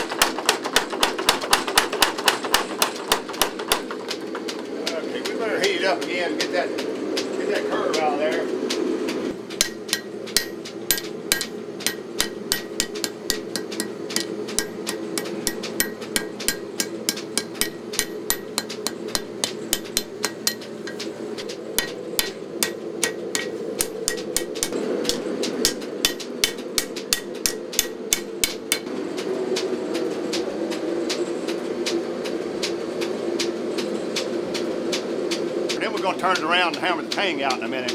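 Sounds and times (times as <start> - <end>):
power hammer striking metal: 0.0 - 7.3, 9.3 - 28.9.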